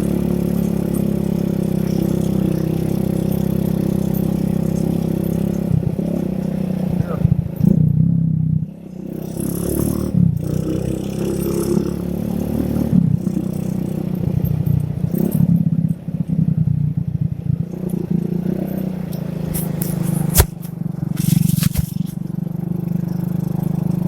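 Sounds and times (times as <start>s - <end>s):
motorcycle engine running: 0.0s - 24.0s
cloth rubbing on microphone: 19.4s - 22.2s
sharp click: 19.5s - 22.2s.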